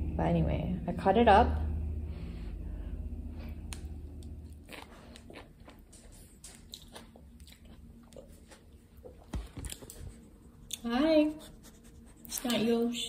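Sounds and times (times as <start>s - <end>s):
low hum: 0.0s - 13.0s
person chewing with wet clicks: 3.6s - 10.9s.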